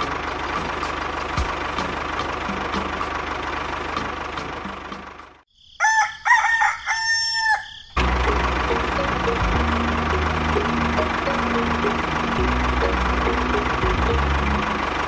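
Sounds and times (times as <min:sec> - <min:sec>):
small engine running: 0:00.0 - 0:05.4, 0:08.0 - 0:15.0
rooster crowing: 0:05.6 - 0:08.0.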